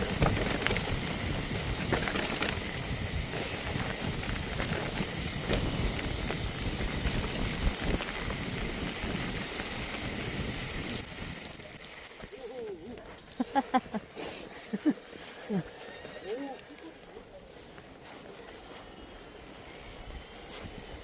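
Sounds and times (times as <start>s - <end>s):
wind on microphone: 0.0s - 11.2s
shrill high-pitched squeal: 10.9s - 12.5s.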